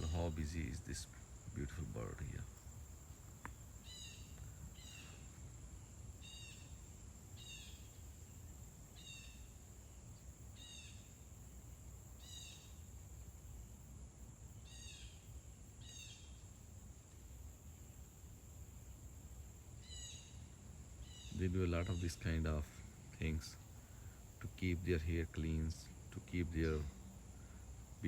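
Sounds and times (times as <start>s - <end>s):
songbird calling: 0.0s - 13.2s, 14.6s - 28.0s
high insect drone: 0.0s - 28.0s
low background rumble: 18.8s - 28.0s.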